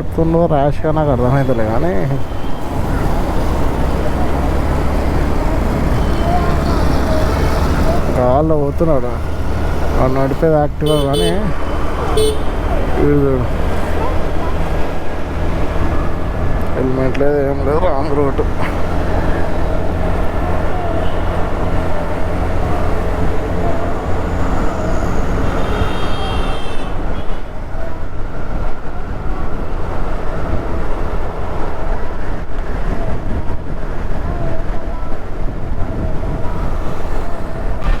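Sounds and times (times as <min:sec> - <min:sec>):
wind and road noise: 0:00.0 - 0:38.0
scooter engine running: 0:02.2 - 0:26.4.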